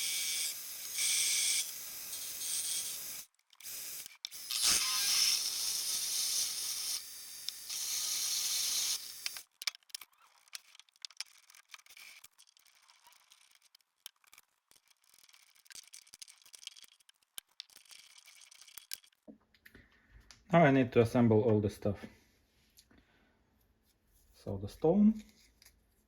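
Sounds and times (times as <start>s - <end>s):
small metal parts clicking: 1.0s - 5.3s, 9.2s - 19.3s.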